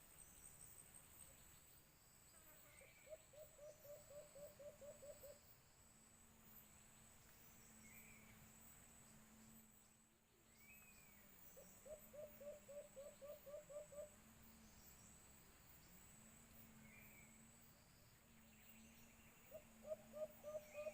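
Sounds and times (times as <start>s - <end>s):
insects trilling: 0.3s - 20.9s
dove low hooting: 2.8s - 5.5s, 11.6s - 14.2s, 19.4s - 20.9s.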